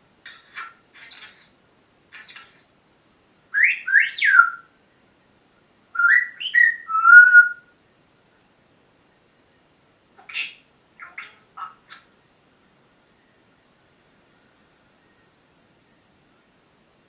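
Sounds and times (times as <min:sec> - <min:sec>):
parrot whistling: 0:03.6 - 0:04.7, 0:06.0 - 0:07.7.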